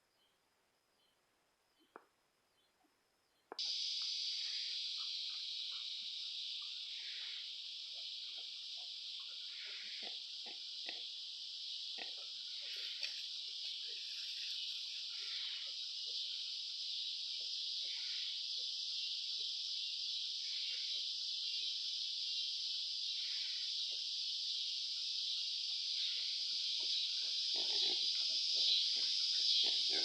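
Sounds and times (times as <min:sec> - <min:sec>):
high-pitched insect chorus: 0:03.5 - 0:30.0
pigs grunting softly: 0:06.6 - 0:11.1, 0:11.9 - 0:14.5, 0:26.0 - 0:30.0.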